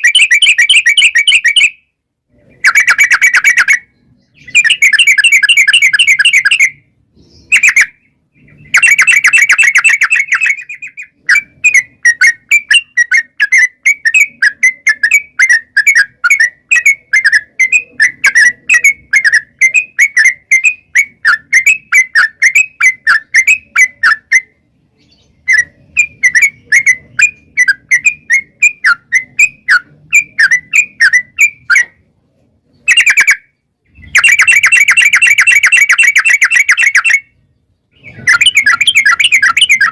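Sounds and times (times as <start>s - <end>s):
bird chattering trills: 0.0s - 1.8s, 2.4s - 32.0s, 32.8s - 39.9s.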